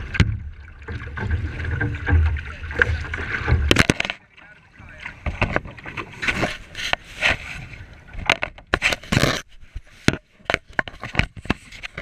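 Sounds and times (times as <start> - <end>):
water splashing: 0.0 - 10.1
kayak scraping and knocking: 0.0 - 12.0.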